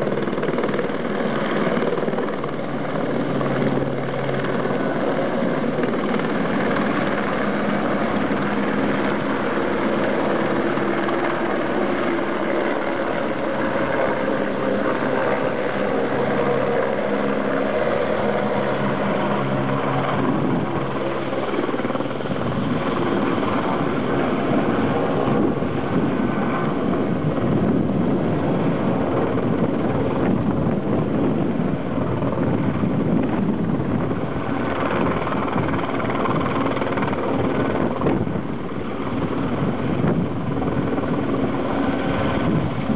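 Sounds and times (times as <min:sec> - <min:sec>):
helicopter turbines and rotor: 0:00.0 - 0:42.9.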